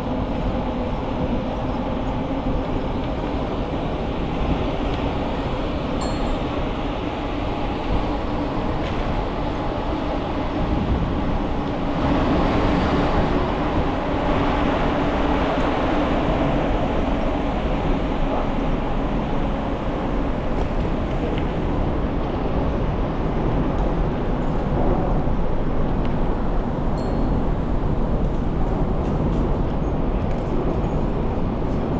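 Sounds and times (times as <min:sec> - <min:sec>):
wind rumbling on microphone: 0:00.0 - 0:31.9
bicycle tyres rolling: 0:13.2 - 0:21.9.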